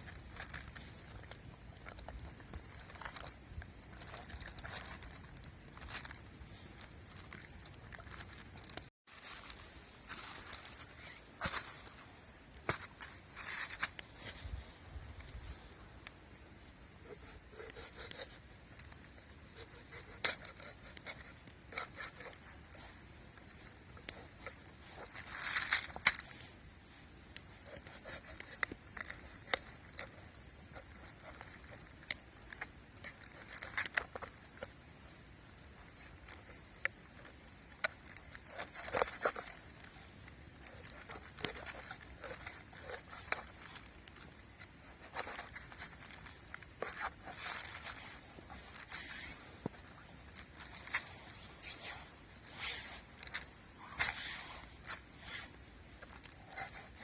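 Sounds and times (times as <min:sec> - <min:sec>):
scratchy crinkling scrapes: 0:00.0 - 0:57.0.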